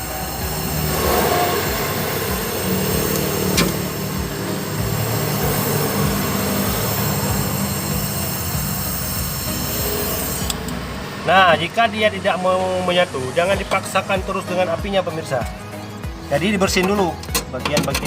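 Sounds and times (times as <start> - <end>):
gas torch flame: 0.0 - 11.4
sharp tick: 3.0 - 3.8, 10.4 - 10.8.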